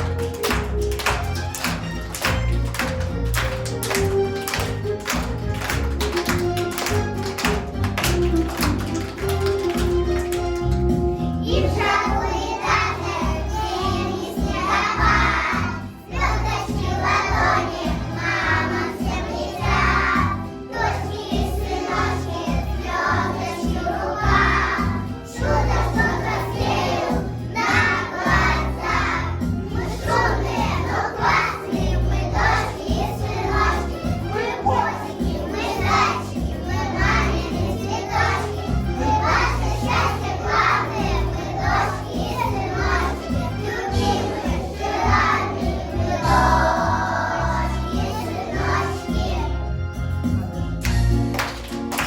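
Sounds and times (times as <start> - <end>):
children's choir singing: 0.0 - 50.1
backing track with steady beat: 47.9 - 52.0.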